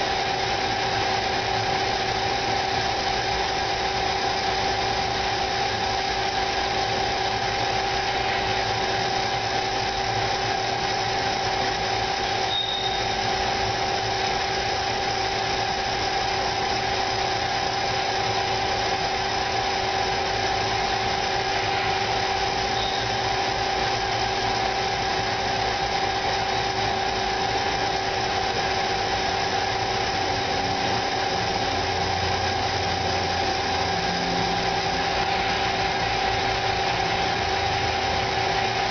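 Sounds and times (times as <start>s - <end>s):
lathe machine hum with whine: 0.0s - 38.9s
brief high squeal: 12.4s - 13.2s, 22.7s - 23.2s.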